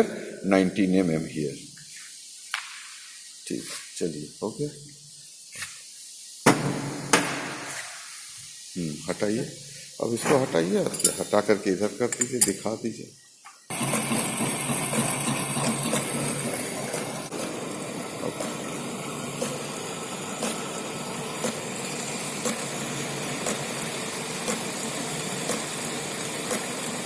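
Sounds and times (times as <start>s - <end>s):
lathe running: 13.7s - 27.0s.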